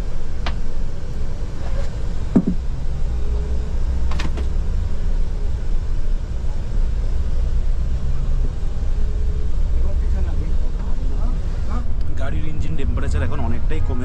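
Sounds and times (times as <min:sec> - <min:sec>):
coach engine rumble: 0:00.0 - 0:14.0
short knocks or rattles: 0:02.3 - 0:02.6.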